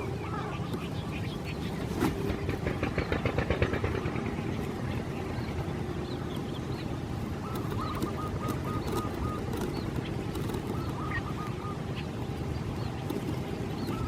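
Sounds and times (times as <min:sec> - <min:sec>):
steady low rumble: 0:00.0 - 0:14.0
waterbird calling: 0:00.0 - 0:14.0
faint bird chirps: 0:04.5 - 0:14.0.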